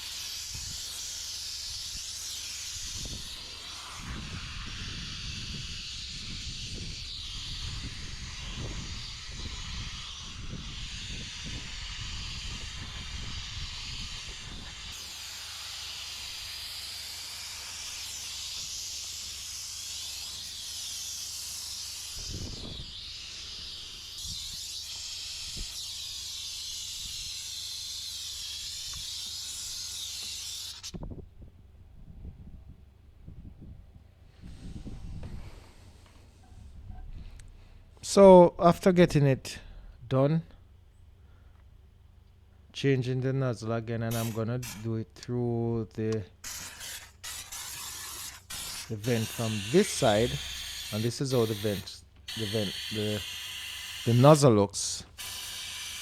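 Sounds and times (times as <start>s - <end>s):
steam cleaner hissing: 0.0s - 30.9s, 44.1s - 44.9s, 46.4s - 56.0s.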